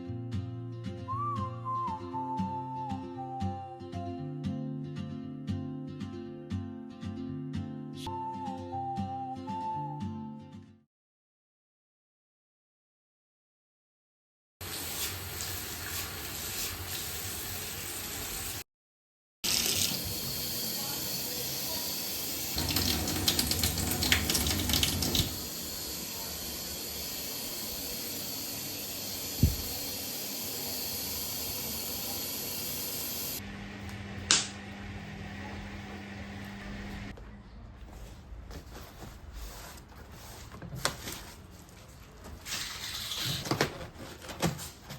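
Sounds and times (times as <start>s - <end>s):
water running from a tap: 14.6s - 18.6s, 19.4s - 33.4s.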